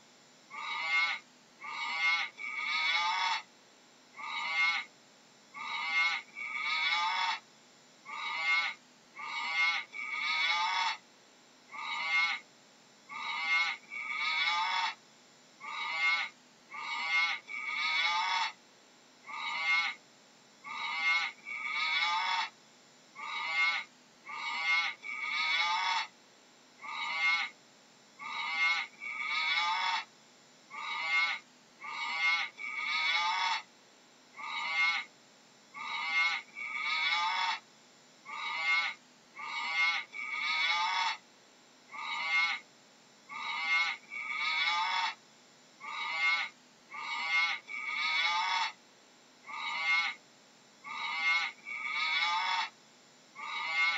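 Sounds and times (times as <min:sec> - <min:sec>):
animal calls: 0:00.5 - 0:03.5, 0:04.2 - 0:04.9, 0:05.6 - 0:07.4, 0:08.0 - 0:11.0, 0:11.7 - 0:12.5, 0:13.1 - 0:15.0, 0:15.6 - 0:18.6, 0:19.2 - 0:20.0, 0:20.6 - 0:22.6, 0:23.2 - 0:26.2, 0:26.8 - 0:27.6, 0:28.2 - 0:30.1, 0:30.7 - 0:33.7, 0:34.4 - 0:35.1, 0:35.8 - 0:37.6, 0:38.2 - 0:41.2, 0:41.9 - 0:42.7, 0:43.3 - 0:45.2, 0:45.8 - 0:48.8, 0:49.4 - 0:50.2, 0:50.8 - 0:52.8, 0:53.4 - 0:53.9.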